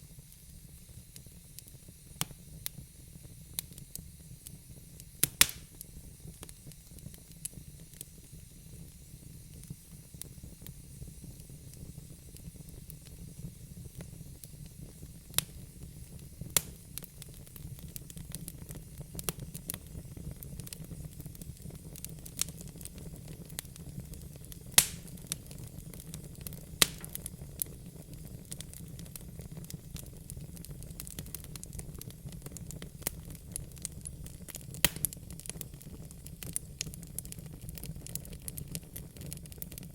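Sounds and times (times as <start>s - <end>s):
fire low rumble and hiss: 0.0s - 39.9s
logs crackling and popping: 5.2s - 8.0s, 15.3s - 39.9s.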